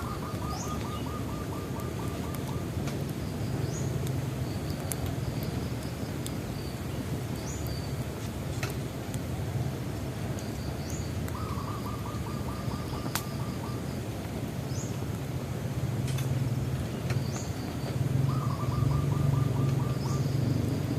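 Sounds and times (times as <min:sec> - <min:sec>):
bird trill: 0:00.0 - 0:02.7, 0:10.7 - 0:14.0, 0:17.2 - 0:20.5
bird rising chirp: 0:00.0 - 0:02.8, 0:17.0 - 0:20.6
bonfire crackling and popping: 0:00.0 - 0:20.9.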